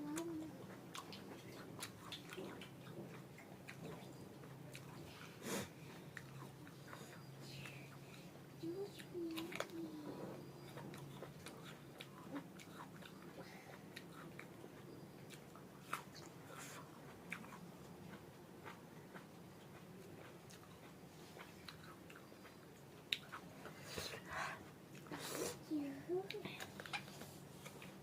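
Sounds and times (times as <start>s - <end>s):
person chewing: 0.1s - 7.1s, 10.6s - 23.8s.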